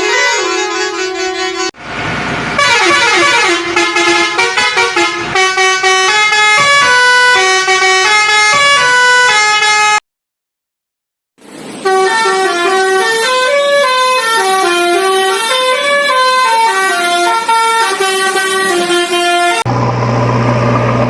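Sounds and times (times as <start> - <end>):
horn tones jumping pitch: 2.6 - 10.0.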